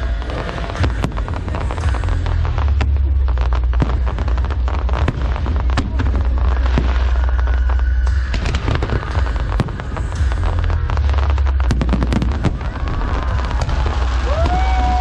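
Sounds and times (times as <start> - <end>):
fireworks bangs and crackles: 0.0 - 15.0
low rumble: 0.0 - 15.0.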